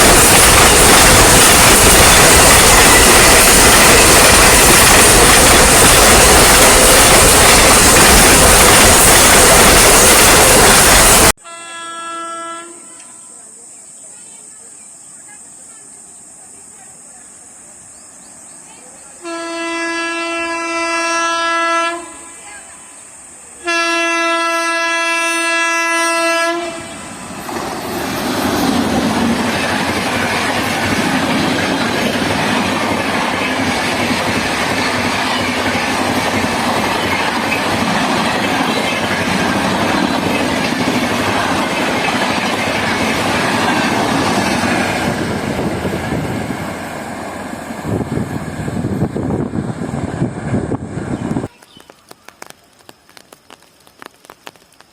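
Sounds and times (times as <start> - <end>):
train wheels clattering over rails: 0.0 - 11.3, 27.3 - 47.9
locomotive horn blasts: 11.4 - 13.4, 19.2 - 22.4, 23.6 - 27.0.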